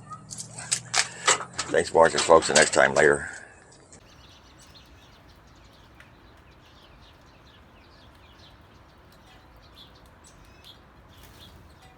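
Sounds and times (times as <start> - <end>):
outdoor background noise: 0.0 - 11.9
faint bird chirping: 3.0 - 11.9.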